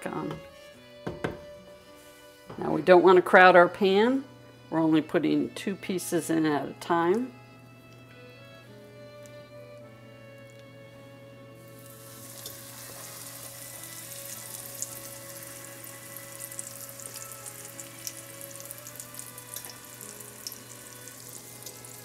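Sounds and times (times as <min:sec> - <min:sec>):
soft background music: 0:00.0 - 0:22.0
chicken cutlet sizzling in oil: 0:11.7 - 0:22.0.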